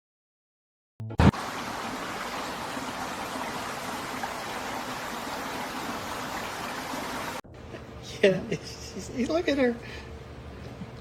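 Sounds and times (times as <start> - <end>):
running water rushing: 1.3 - 7.4.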